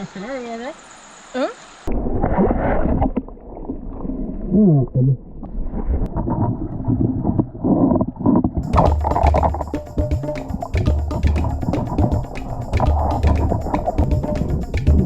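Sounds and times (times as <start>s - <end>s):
muffled water noise: 1.1s - 15.0s
music with drum beat: 8.6s - 15.0s.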